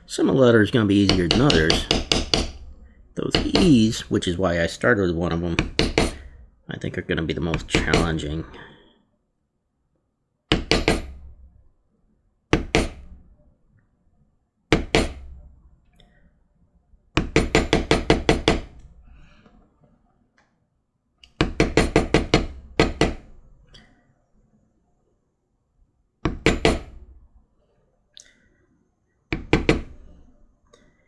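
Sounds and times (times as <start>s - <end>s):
mallet striking leather tool: 1.1s - 2.7s, 3.3s - 3.9s, 5.6s - 6.3s, 10.5s - 11.2s, 12.5s - 13.2s, 14.7s - 15.3s, 17.2s - 18.8s.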